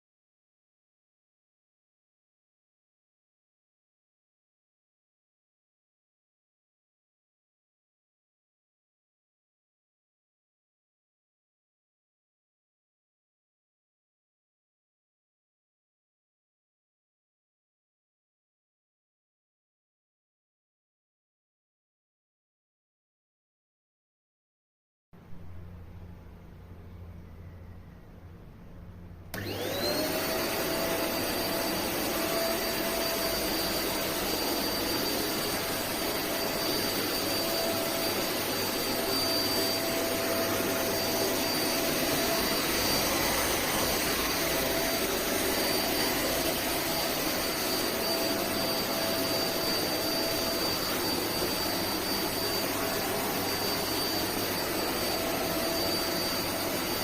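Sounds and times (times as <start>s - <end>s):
handheld vacuum cleaner whining: 29.3s - 57.0s.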